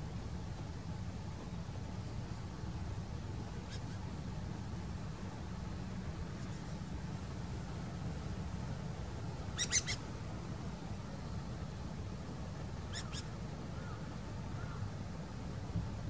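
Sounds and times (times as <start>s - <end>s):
bird giving sharp high calls: 3.6s - 4.1s, 9.5s - 10.1s, 12.8s - 14.8s.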